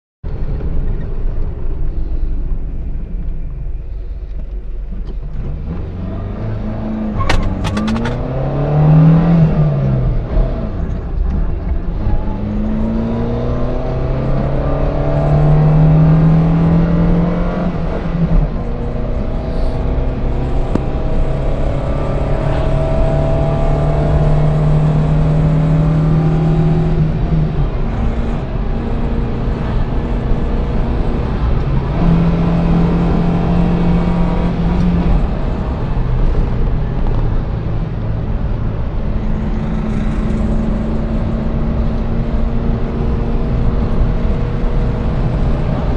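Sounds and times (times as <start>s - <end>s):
car engine accelerating through gears: 0.3s - 45.9s.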